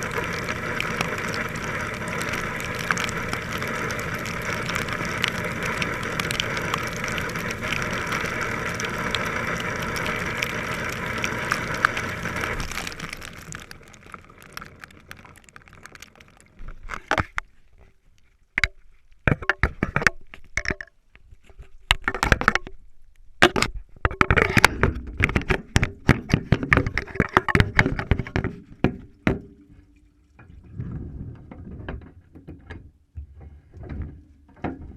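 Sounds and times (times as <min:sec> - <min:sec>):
clicks knocks and clatters: 0:18.6 - 0:22.8, 0:23.4 - 0:29.6.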